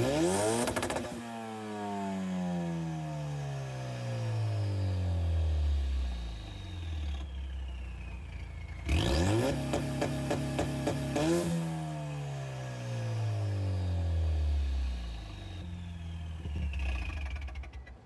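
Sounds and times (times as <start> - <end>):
car engine revving: 0.0 - 1.2, 8.8 - 11.8
exhaust crackling stutter: 16.0 - 18.0.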